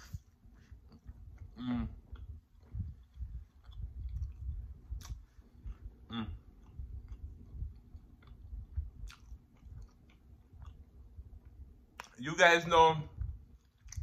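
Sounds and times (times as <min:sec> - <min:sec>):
person chewing: 0:00.0 - 0:12.2, 0:13.2 - 0:14.0
wet mouth clicks: 0:01.0 - 0:10.8
person humming mm: 0:01.5 - 0:02.0, 0:06.1 - 0:06.4.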